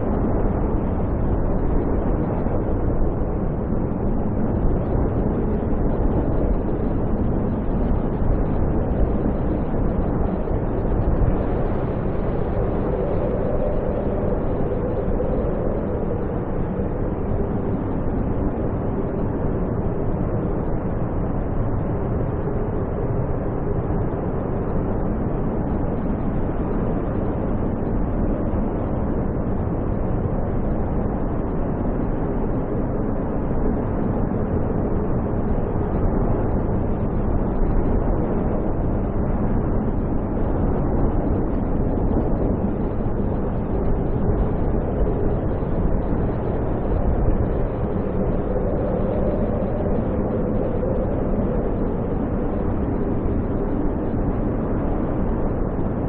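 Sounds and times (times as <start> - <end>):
snowstorm wind rushing: 0.0 - 56.0.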